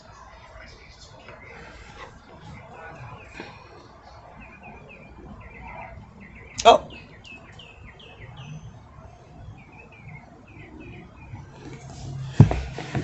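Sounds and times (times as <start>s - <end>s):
soft rustling: 11.6s - 13.0s.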